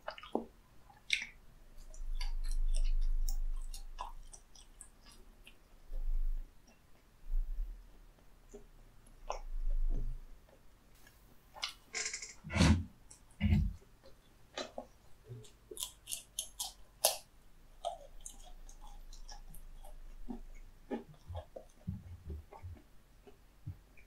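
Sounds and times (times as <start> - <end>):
chewing crispy fried food: 0.0 - 7.2, 14.0 - 23.4.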